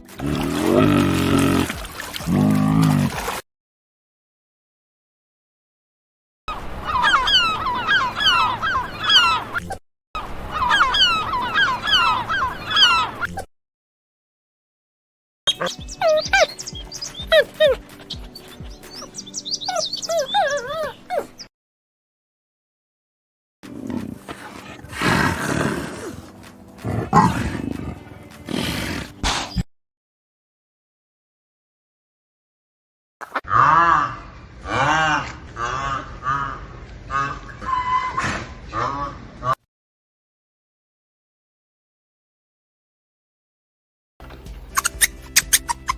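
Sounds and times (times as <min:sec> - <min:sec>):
big cat roaring: 0:00.2 - 0:03.2, 0:23.6 - 0:29.3
flock of birds calling: 0:06.5 - 0:09.6, 0:10.2 - 0:13.3.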